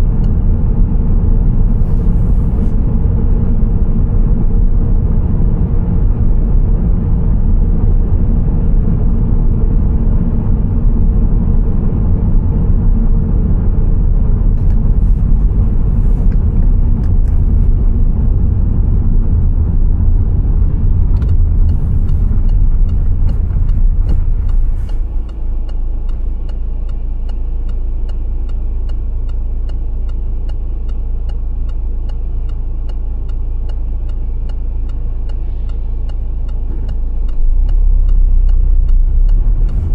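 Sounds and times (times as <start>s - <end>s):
car road and engine rumble: 0.0s - 39.9s
regular ticking: 21.2s - 39.7s.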